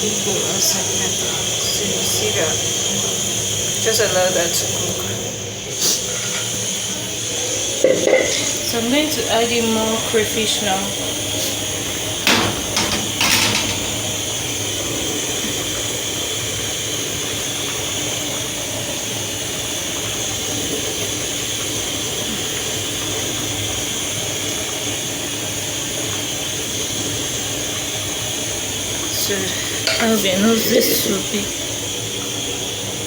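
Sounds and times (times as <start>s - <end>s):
pot of soup hissing: 0.0s - 33.0s
short knocks: 12.2s - 14.6s.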